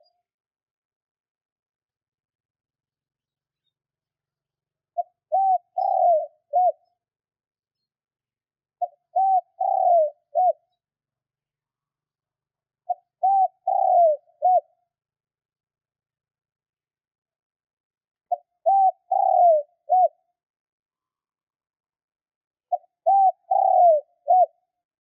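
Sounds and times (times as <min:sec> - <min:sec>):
dove cooing: 0:05.0 - 0:06.8, 0:08.8 - 0:10.6, 0:12.9 - 0:14.7, 0:18.3 - 0:20.2, 0:22.7 - 0:24.6.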